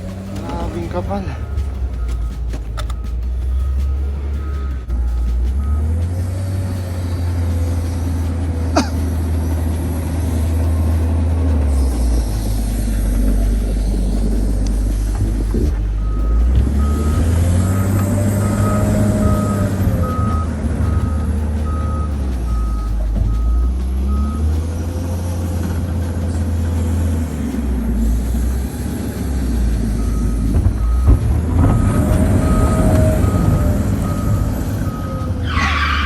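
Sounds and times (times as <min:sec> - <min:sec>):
reversing alarm beeping: 0:00.0 - 0:07.8, 0:15.5 - 0:24.5, 0:30.0 - 0:36.0
bulldozer diesel engine revving: 0:00.0 - 0:36.0.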